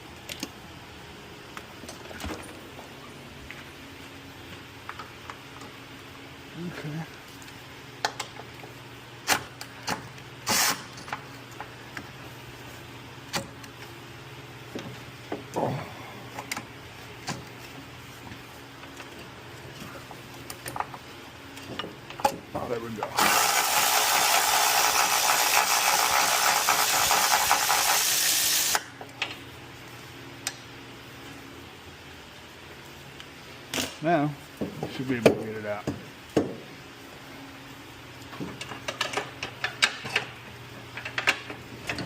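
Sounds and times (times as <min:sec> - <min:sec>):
steady low hum: 0:00.0 - 0:27.2
pneumatic ratchet running: 0:10.4 - 0:11.0, 0:23.1 - 0:28.9.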